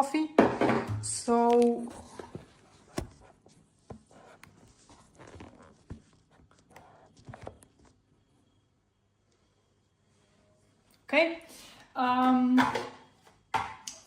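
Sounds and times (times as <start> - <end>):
soft rustling: 1.6 - 8.0.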